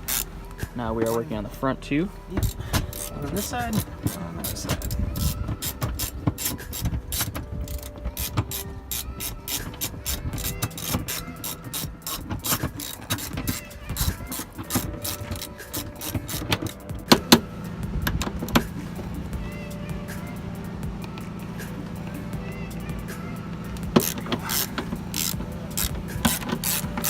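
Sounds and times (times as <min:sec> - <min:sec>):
ratchet wrench clicking: 0:00.0 - 0:00.3, 0:02.4 - 0:17.4, 0:23.7 - 0:27.0.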